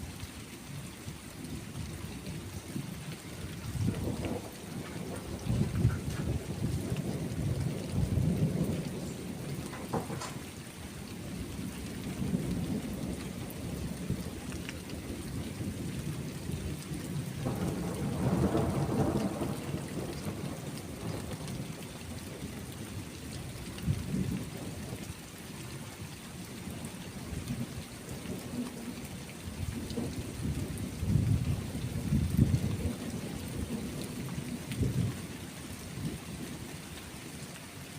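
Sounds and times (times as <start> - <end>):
steady rain: 0.0 - 37.9
rolling thunder: 2.8 - 10.6, 15.0 - 22.8, 29.6 - 35.1.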